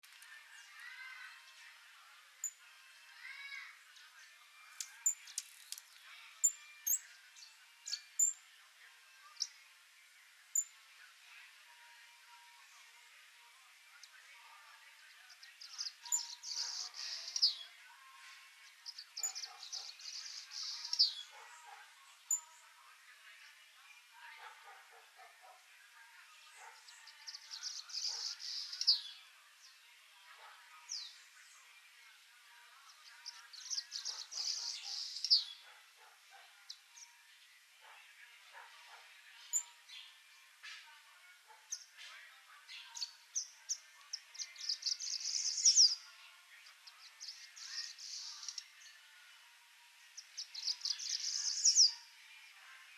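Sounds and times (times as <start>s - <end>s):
bird chirping: 4.0s - 8.4s, 14.0s - 17.8s, 18.6s - 22.7s, 26.5s - 29.2s, 32.8s - 37.2s, 37.9s - 40.8s, 42.6s - 46.1s, 50.2s - 52.1s.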